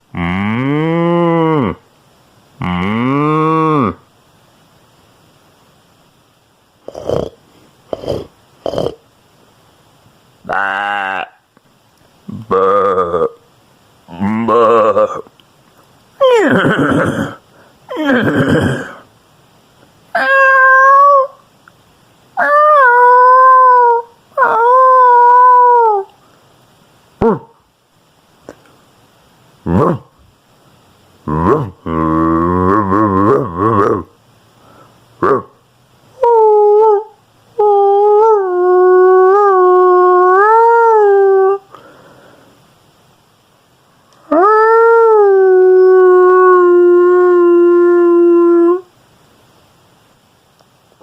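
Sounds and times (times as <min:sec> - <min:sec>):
person imitating animal calls: 0:00.0 - 0:01.9, 0:02.6 - 0:04.1, 0:06.8 - 0:09.0, 0:10.4 - 0:11.5, 0:12.2 - 0:13.5, 0:14.1 - 0:15.4, 0:16.2 - 0:19.1, 0:20.1 - 0:21.4, 0:22.4 - 0:26.2, 0:27.2 - 0:27.6, 0:29.6 - 0:30.2, 0:31.2 - 0:34.2, 0:35.2 - 0:41.8, 0:44.2 - 0:48.9.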